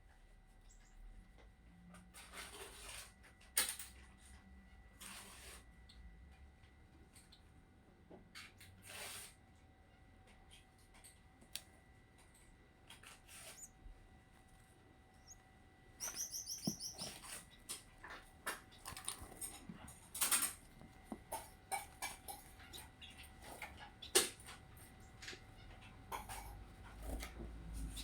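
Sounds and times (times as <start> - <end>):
high thin peeps: 13.4 - 13.7, 16.0 - 17.4
chicks chirping: 13.5 - 13.7, 15.2 - 15.4, 16.0 - 17.7, 21.2 - 24.3
scratching and shuffling: 14.4 - 25.0.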